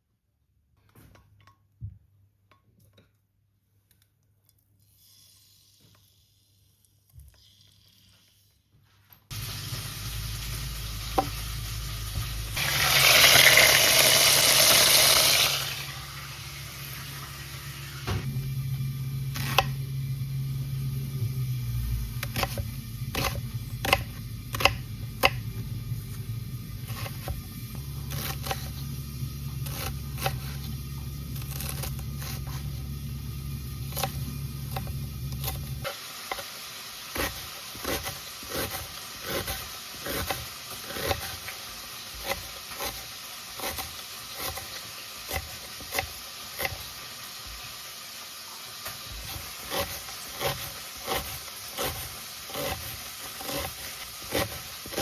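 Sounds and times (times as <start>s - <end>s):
food sizzling in a pan: 9.3s - 21.5s, 32.0s - 55.0s
low hum: 15.6s - 35.8s.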